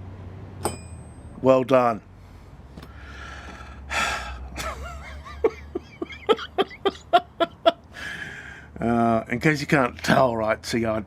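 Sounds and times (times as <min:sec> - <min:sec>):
man laughing: 0:04.3 - 0:08.2.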